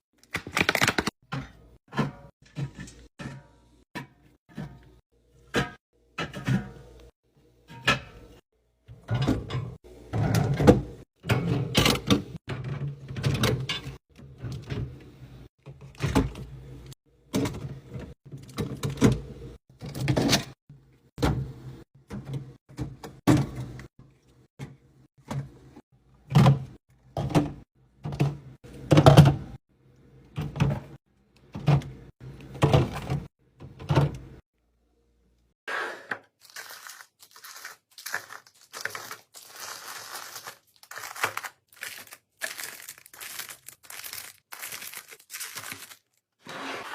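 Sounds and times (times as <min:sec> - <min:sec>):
packaging crinkling: 0:36.4 - 0:46.3.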